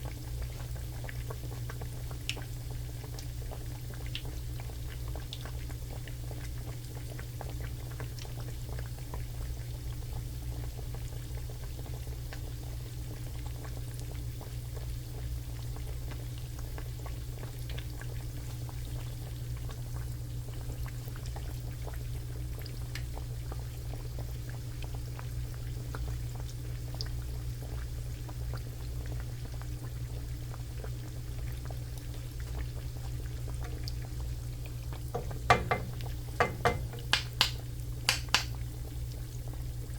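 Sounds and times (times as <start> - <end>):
oil frying in a pan: 0.0 - 39.9
steady low hum: 32.0 - 38.6.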